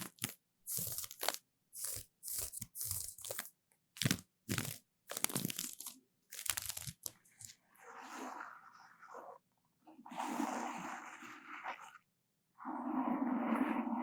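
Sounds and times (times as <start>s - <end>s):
crisp crunching and scratching: 0.0s - 7.5s.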